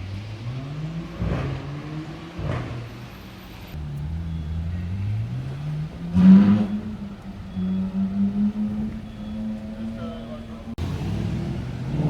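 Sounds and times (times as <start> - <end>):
sports car engine revving: 3.8 - 12.0.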